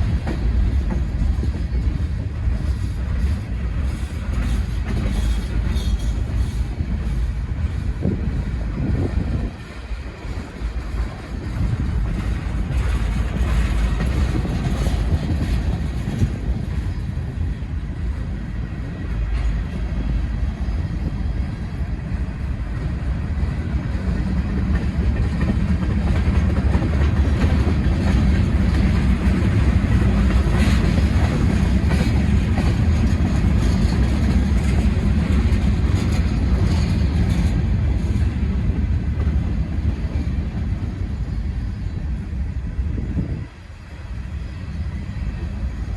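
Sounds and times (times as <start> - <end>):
wheels clicking over rail joints: 0.0 - 17.6, 23.6 - 41.1
steel wheels rumbling on rail: 0.0 - 45.9.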